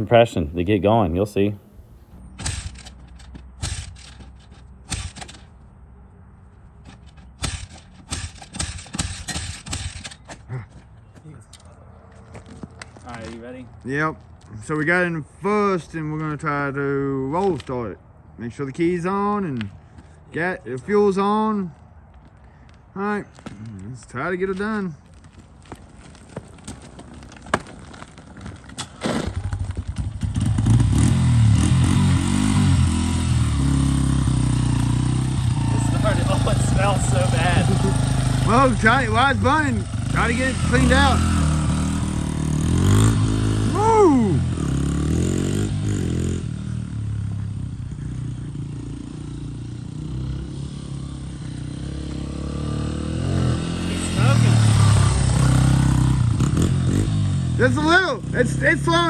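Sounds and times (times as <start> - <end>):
motorcycle engine revving: 0.0 - 5.5, 7.1 - 10.6, 29.1 - 59.0.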